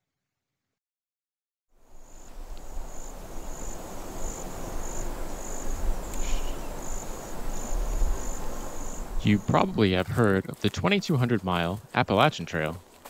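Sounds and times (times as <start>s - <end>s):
rushing hiss: 1.8s - 9.4s
insect chirping trill: 1.8s - 10.1s.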